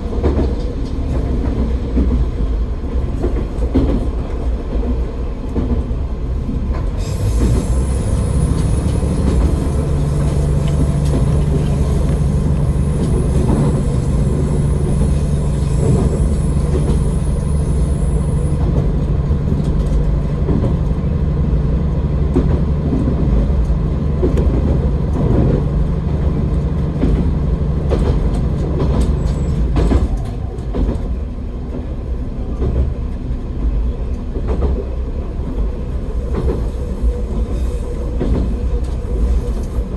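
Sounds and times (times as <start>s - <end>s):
wheels clacking over rail joints: 0.0s - 39.9s
diesel engine drone: 6.4s - 29.1s
high wheel squeal: 7.0s - 18.8s.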